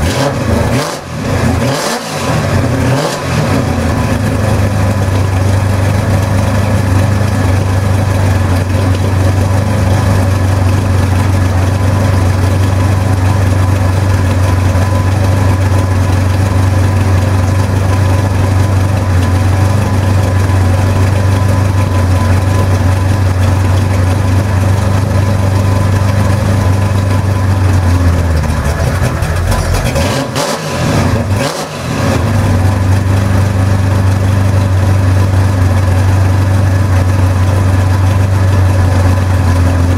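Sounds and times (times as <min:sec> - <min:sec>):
car engine exhaust note: 0:00.0 - 0:39.9.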